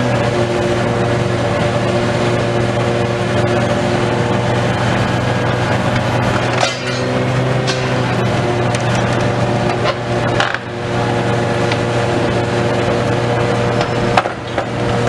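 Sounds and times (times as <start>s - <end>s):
heavy machine engine running: 0.0s - 15.0s
metal and debris clinking: 6.4s - 10.6s.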